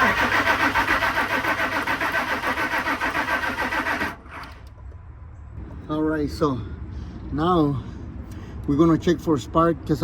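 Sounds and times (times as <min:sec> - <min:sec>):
engine cranking by starter: 0:00.0 - 0:04.8.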